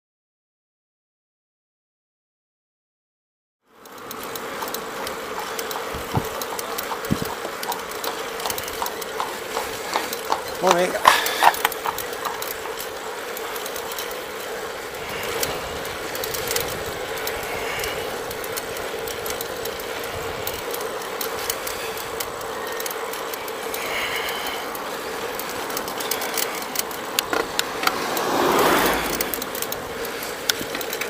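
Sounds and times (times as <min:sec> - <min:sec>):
bicycle rolling and drivetrain noise: 0:03.7 - 0:31.0
ratcheting clicks and rattles: 0:03.7 - 0:31.0
loud rushing noise: 0:27.3 - 0:29.7.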